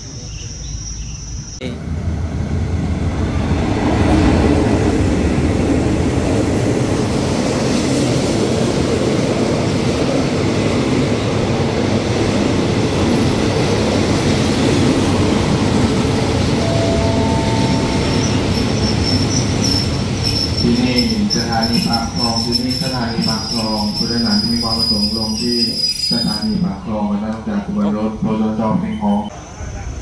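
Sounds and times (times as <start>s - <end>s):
diesel train rumbling: 0.0s - 30.0s
high wheel or brake squeal: 16.6s - 26.7s.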